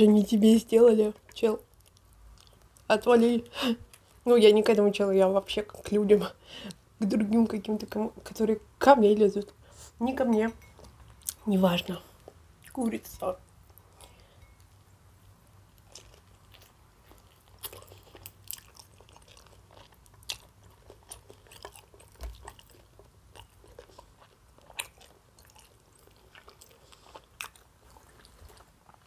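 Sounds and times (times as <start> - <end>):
chewing fried chicken close up: 1.0 - 3.2, 15.3 - 29.0.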